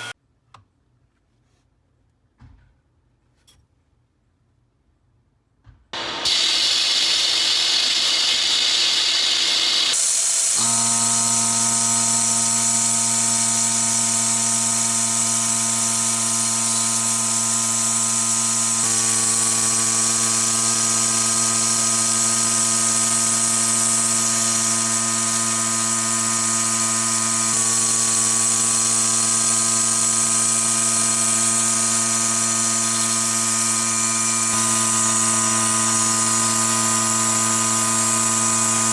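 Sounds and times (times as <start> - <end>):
high hissing grinding noise: 6.0 - 17.8
power tool motor whine: 6.0 - 38.9.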